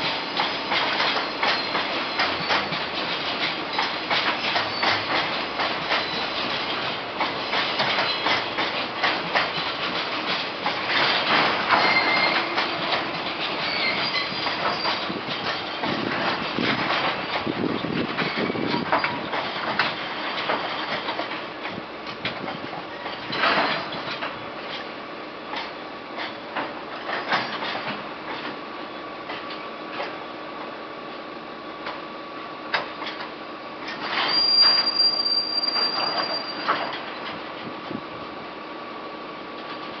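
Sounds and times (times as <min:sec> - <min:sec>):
wagons clanking and knocking: 0:00.0 - 0:24.9, 0:25.5 - 0:28.6, 0:32.7 - 0:38.0
freight train arriving: 0:00.0 - 0:40.0
wheel and brake squeal: 0:01.2 - 0:02.8, 0:03.7 - 0:05.2, 0:05.9 - 0:06.8, 0:07.4 - 0:08.4, 0:11.7 - 0:15.9, 0:17.3 - 0:21.1, 0:33.9 - 0:37.4.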